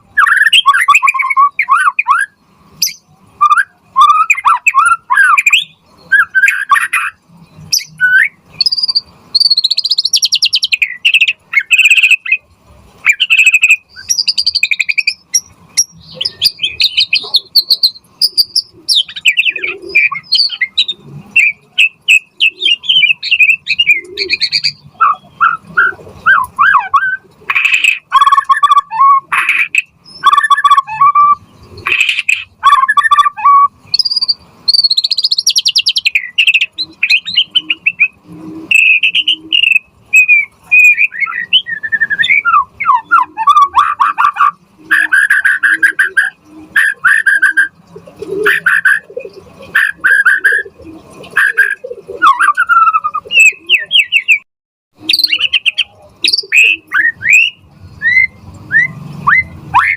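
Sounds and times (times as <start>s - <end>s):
songbird singing whistles and trills: 0.0s - 59.9s.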